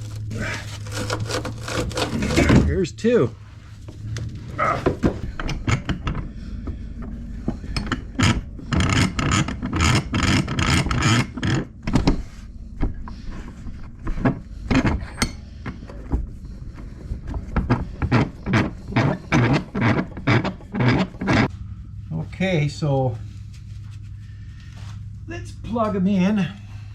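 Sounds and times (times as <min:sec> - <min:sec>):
hand tool rasping metal: 0:00.0 - 0:02.6, 0:17.8 - 0:21.5.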